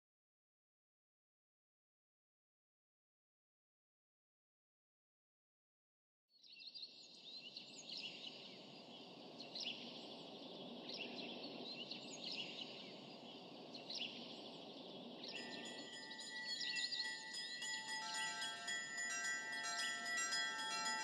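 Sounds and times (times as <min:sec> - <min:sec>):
small birds chirping: 0:06.4 - 0:21.0
chiming glockenspiel music: 0:15.3 - 0:21.0.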